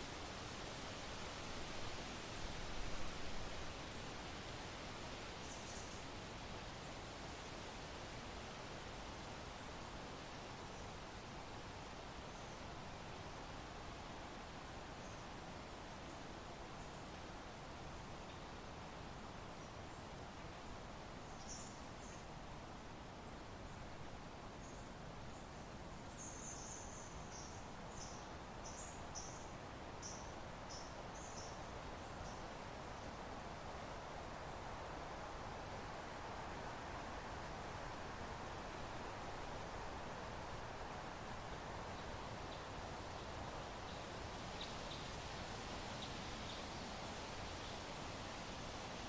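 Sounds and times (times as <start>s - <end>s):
soft steady wind: 0.0s - 49.0s.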